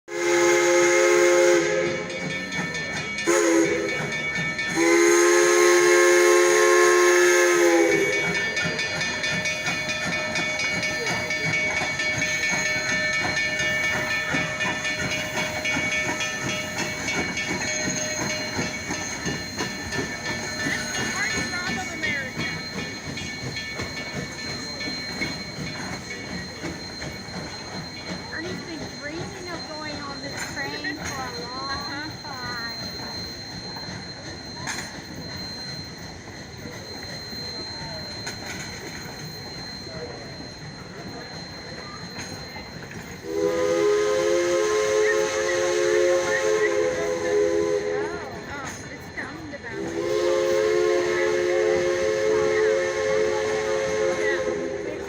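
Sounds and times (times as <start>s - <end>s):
steam locomotive whistle blasts: 0.1s - 2.3s, 3.2s - 9.3s, 43.2s - 48.5s, 49.7s - 55.0s
steam hissing: 0.1s - 55.0s
train cars rattling and clanking: 0.1s - 55.0s.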